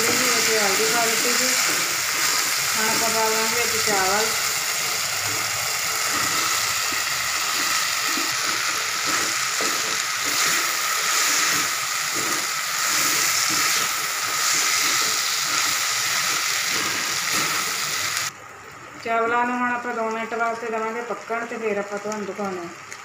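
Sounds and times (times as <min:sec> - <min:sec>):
food sizzling in hot oil: 0:00.0 - 0:18.3.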